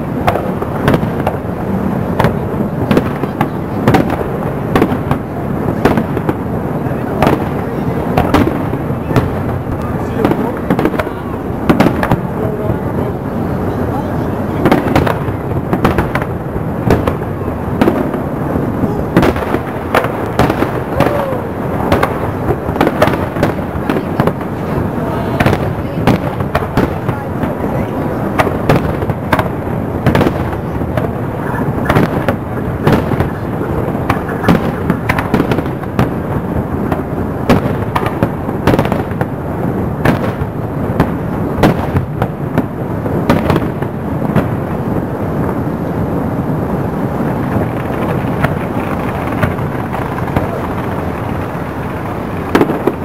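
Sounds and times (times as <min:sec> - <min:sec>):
firework crackle: 0:00.0 - 0:53.0
firework shells bursting: 0:14.6 - 0:45.1, 0:47.1 - 0:53.0.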